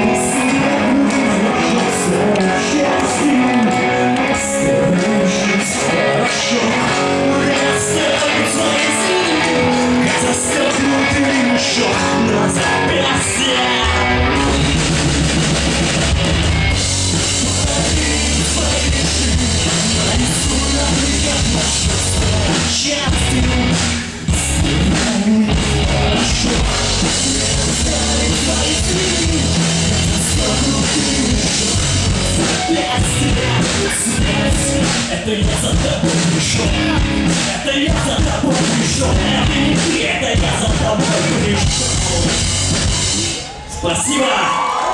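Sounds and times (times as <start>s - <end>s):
person singing: 0.0s - 15.8s, 17.1s - 43.5s
electric guitar: 0.0s - 43.8s
bass and drums: 0.0s - 44.9s.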